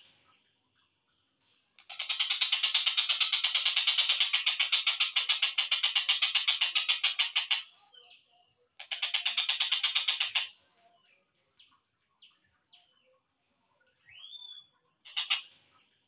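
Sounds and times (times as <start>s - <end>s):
kingfisher harsh calls: 15.1s - 15.5s.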